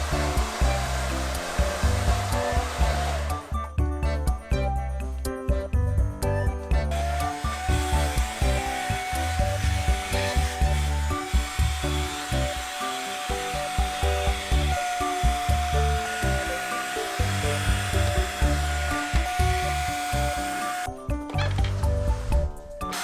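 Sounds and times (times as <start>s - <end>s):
mini vacuum cleaner whirring: 0.0s - 3.6s, 6.9s - 20.9s
background music: 0.0s - 23.0s.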